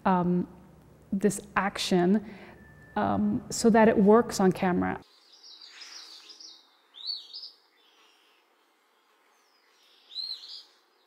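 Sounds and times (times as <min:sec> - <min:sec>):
faint outdoor hiss: 0:00.0 - 0:11.0
birds chirping: 0:04.5 - 0:11.0.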